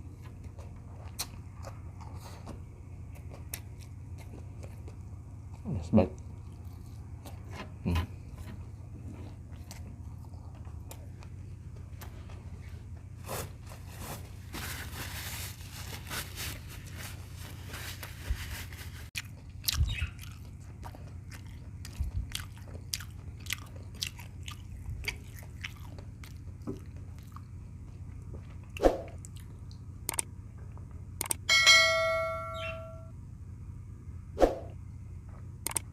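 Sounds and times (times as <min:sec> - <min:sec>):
person chewing food: 0:00.0 - 0:13.6, 0:19.2 - 0:31.4
steady low hum: 0:00.0 - 0:35.9.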